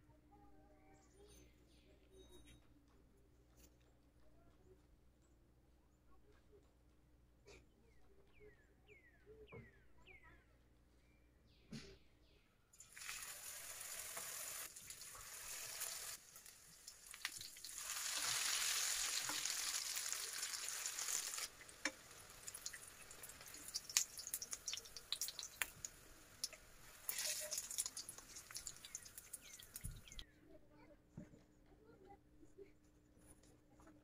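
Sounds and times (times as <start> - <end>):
batter frying in hot oil: 12.8 - 30.2
oil crackling: 12.8 - 30.2.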